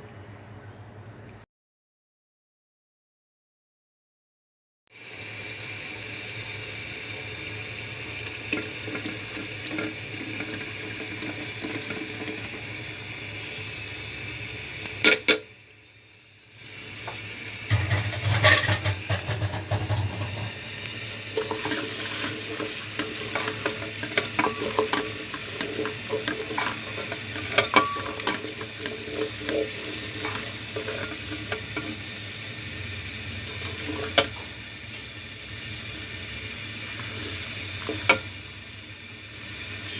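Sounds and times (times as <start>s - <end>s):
steady hiss: 5.0s - 39.9s
utensils and dishes clinking: 17.7s - 20.5s, 21.4s - 32.0s.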